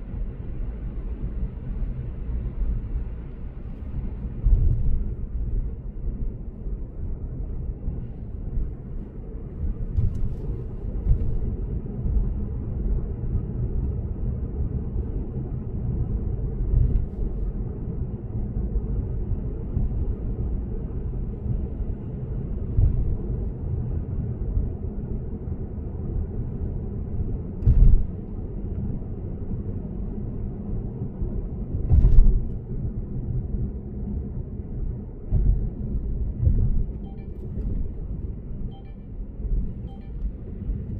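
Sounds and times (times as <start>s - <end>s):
road and tyre rumble: 0.0s - 40.9s.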